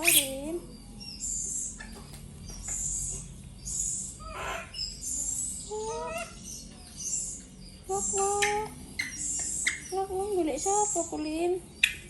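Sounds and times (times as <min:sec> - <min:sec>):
high-pitched bird chirps: 0:00.0 - 0:12.0.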